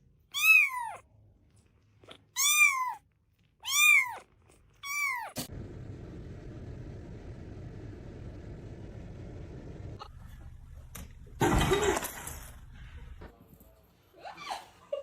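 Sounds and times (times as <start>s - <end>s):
cat meowing loudly: 3.6s - 5.4s.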